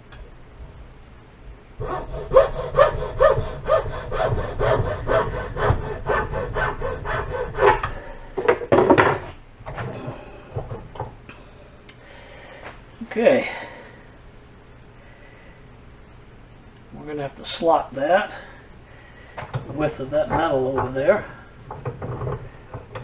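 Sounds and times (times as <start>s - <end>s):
hand saw cutting hose: 1.8s - 8.2s, 19.7s - 21.2s
handling knocks: 19.4s - 23.0s.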